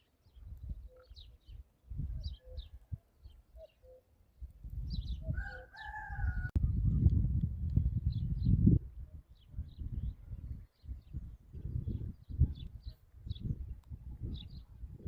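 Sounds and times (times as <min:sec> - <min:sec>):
small birds chirping: 0:00.0 - 0:07.1, 0:07.7 - 0:15.0
rooster crowing: 0:05.3 - 0:06.6.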